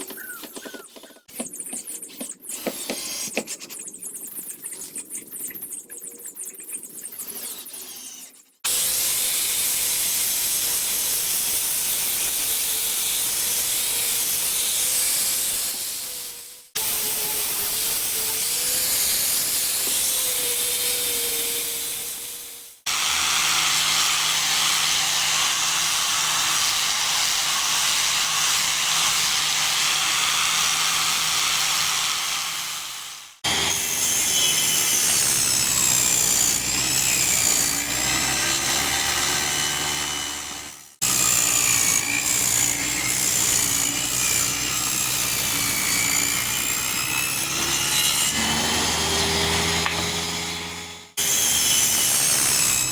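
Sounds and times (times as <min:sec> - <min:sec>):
power tool high rushing noise: 0:47.1 - 0:52.9.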